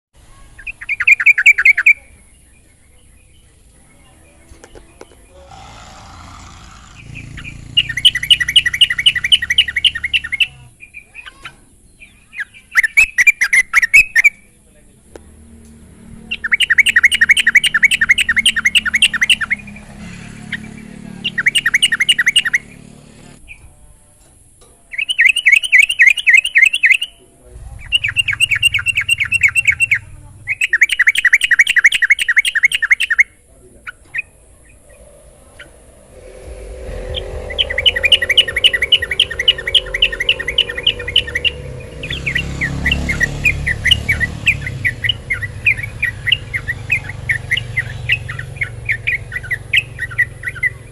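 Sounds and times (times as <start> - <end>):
low rumble: 27.3 - 30.6, 34.0 - 50.9.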